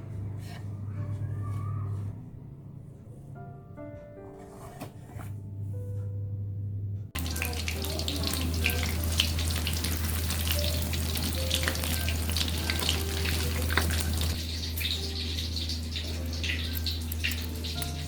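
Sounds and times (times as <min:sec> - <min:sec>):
food frying in hot oil: 0:07.2 - 0:18.0.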